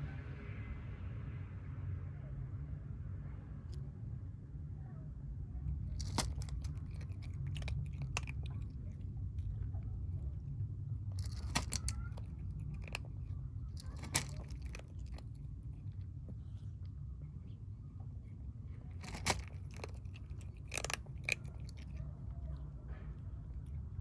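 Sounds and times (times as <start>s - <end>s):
steady low rumble: 0.0s - 24.0s
kittens crunching food: 5.6s - 24.0s.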